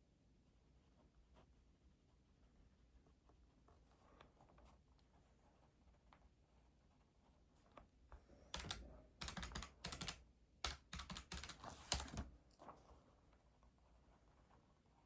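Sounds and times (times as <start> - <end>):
rapid key tapping: 8.6 - 12.3.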